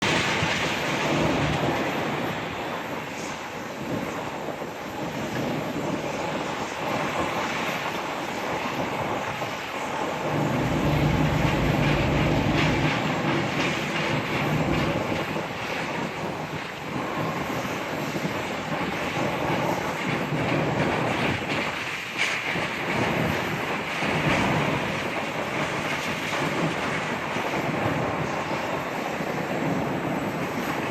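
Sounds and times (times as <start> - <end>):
jet engines at low thrust: 0.0 - 30.9
deep rumble: 10.2 - 15.3.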